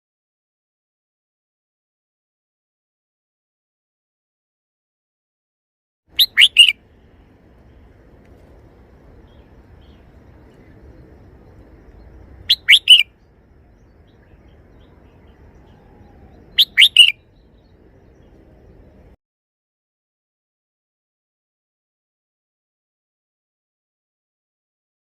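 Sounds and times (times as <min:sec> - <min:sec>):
bird singing short phrases: 0:06.2 - 0:06.8, 0:09.2 - 0:19.2.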